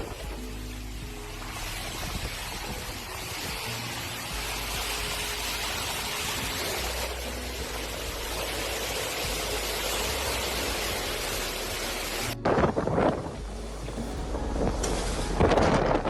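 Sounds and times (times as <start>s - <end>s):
rain: 0.0s - 12.4s, 13.3s - 16.0s
wind buffeting microphone: 1.1s - 5.2s, 12.4s - 16.0s.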